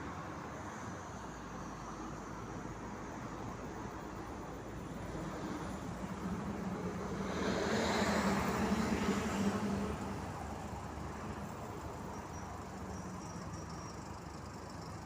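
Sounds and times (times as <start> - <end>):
low traffic hum: 0.0 - 15.0
vehicle passing: 5.3 - 11.5.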